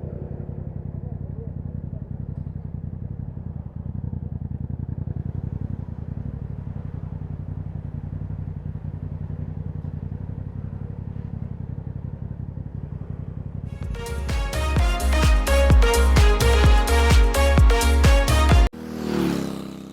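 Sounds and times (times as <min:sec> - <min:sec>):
motorcycle engine idling: 0:00.0 - 0:19.9.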